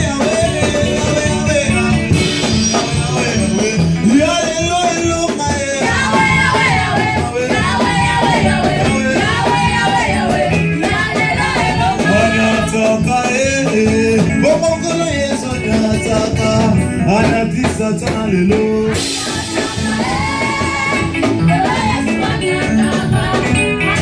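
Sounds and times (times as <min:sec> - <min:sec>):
bass line: 0:00.0 - 0:24.0
electric guitar: 0:00.0 - 0:24.0
choir singing: 0:05.8 - 0:12.9, 0:18.9 - 0:24.0.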